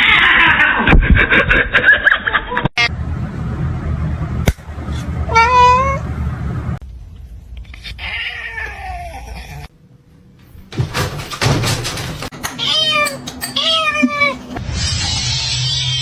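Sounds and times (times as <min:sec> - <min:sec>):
cat meowing: 0:12.6 - 0:14.5.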